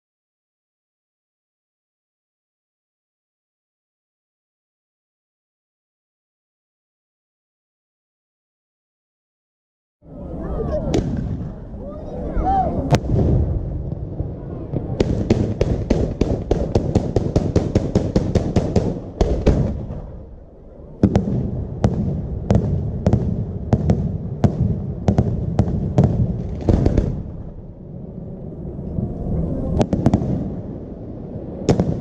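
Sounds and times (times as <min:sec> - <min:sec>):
firework launch reports and cracks: 0:10.1 - 0:32.0
deep firework boom: 0:10.8 - 0:11.9, 0:12.8 - 0:20.3, 0:21.0 - 0:27.8, 0:29.7 - 0:32.0.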